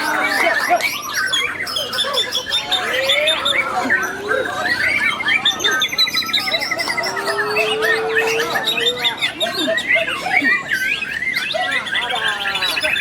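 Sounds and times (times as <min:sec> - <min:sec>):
birds singing whistles and trills: 0:00.0 - 0:13.0.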